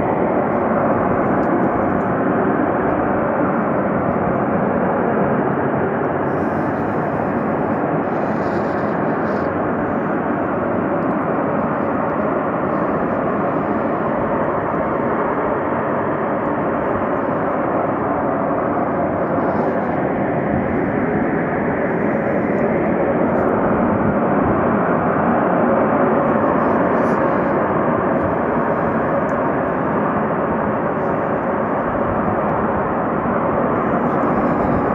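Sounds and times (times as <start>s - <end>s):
steam venting with rushing hiss: 6.2s - 23.6s.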